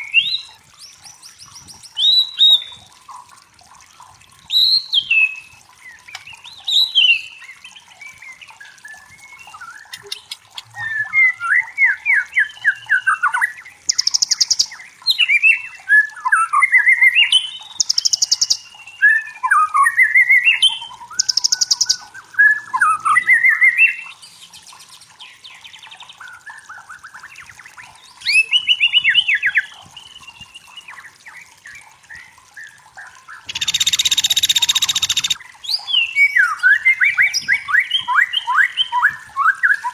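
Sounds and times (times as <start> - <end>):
bird singing whistled phrases: 8.9 - 24.2, 28.2 - 30.9, 33.4 - 39.9.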